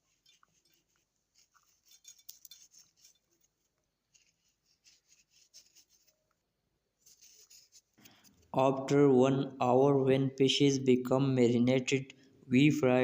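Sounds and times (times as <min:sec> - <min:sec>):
light rubbing: 0:00.0 - 0:06.3.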